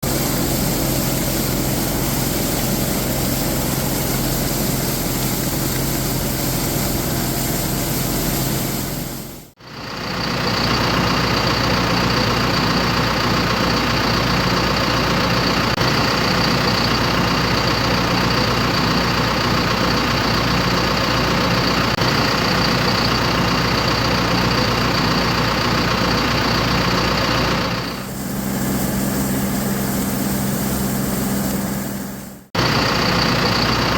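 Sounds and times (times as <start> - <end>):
high whine: 0.0 - 9.5, 27.6 - 32.9
tractor engine running: 0.0 - 33.9.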